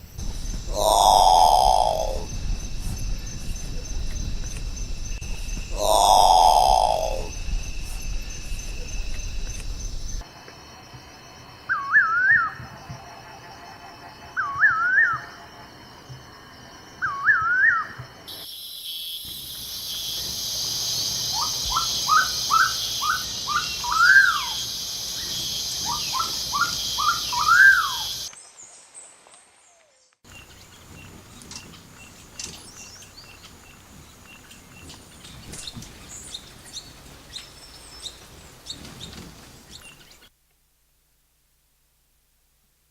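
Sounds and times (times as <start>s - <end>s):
high insect-like hiss: 0.0s - 11.8s, 17.9s - 28.7s, 30.3s - 40.3s
bird calls: 0.5s - 4.5s, 5.2s - 10.2s
rising bird notes with swoops: 0.7s - 10.2s
faint high chirps: 5.2s - 10.2s.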